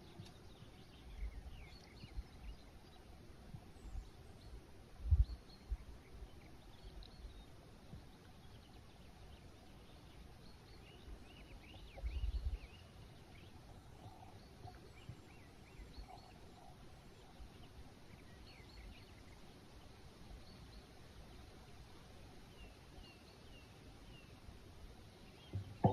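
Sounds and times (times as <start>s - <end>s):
songbirds chirping: 0.0s - 25.9s
low rumbles: 25.6s - 25.9s.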